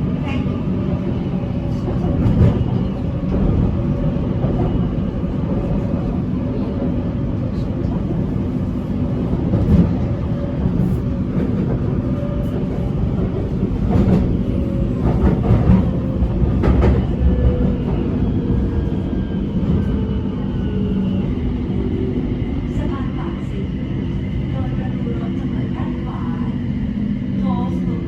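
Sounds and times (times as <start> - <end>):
train wheels clattering on track: 9.4 - 18.2.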